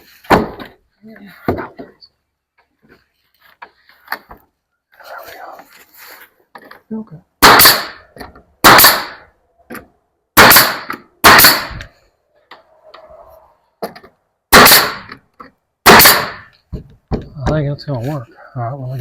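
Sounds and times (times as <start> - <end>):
nail gun firing: 7.4 - 8.0, 8.6 - 9.2, 10.4 - 11.9, 14.5 - 15.2, 15.8 - 16.5.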